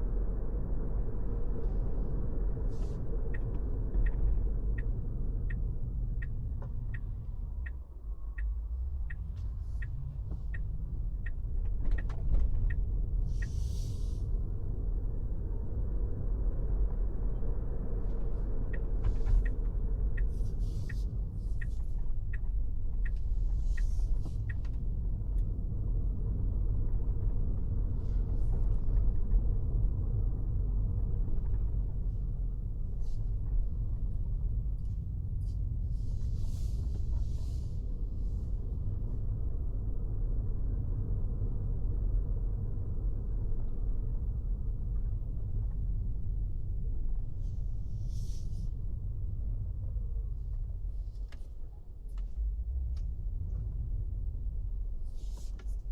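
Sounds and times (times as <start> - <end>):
road and engine rumble in car: 0.0 - 55.9.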